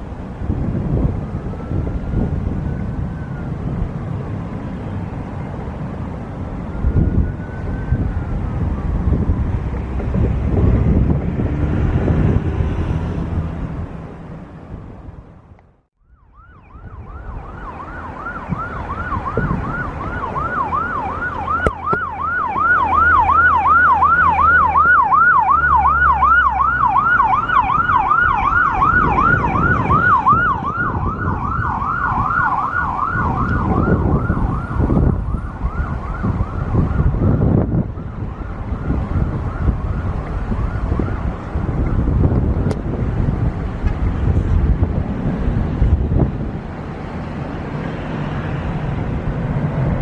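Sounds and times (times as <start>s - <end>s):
siren yelping: 1.2s - 4.6s, 6.6s - 9.8s, 16.0s - 42.8s.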